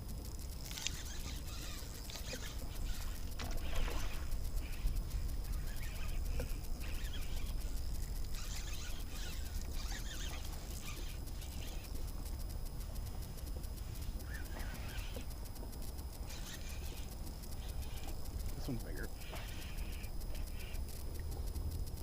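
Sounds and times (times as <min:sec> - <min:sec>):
water splashing against kayak: 0:00.8 - 0:12.3.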